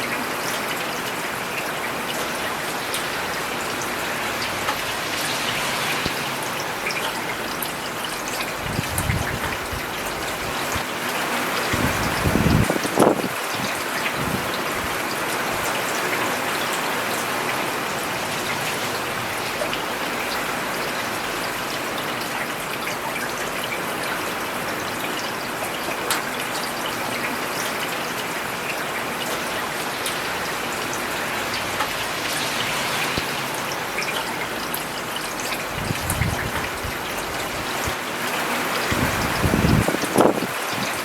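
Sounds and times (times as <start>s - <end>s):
rain on pavement: 0.0s - 41.0s.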